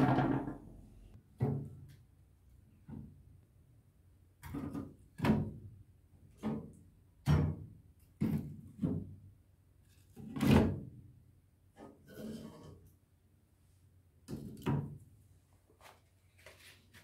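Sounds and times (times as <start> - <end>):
dull thumps and knocks: 0.0 - 0.7.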